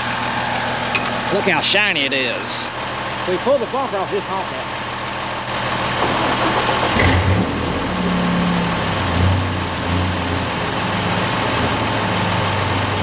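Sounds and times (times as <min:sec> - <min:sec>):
truck engine revving hard: 0:05.6 - 0:13.0.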